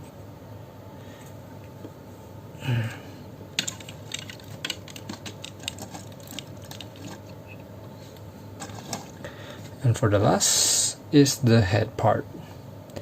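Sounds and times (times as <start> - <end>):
plastic parts clicking: 3.6 - 7.3.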